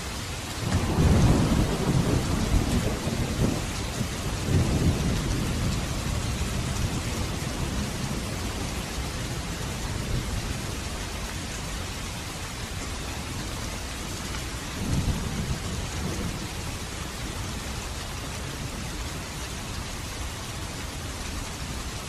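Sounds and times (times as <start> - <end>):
steady rain falling: 0.0 - 22.0
low rumble of thunder: 0.5 - 11.6, 13.7 - 19.9.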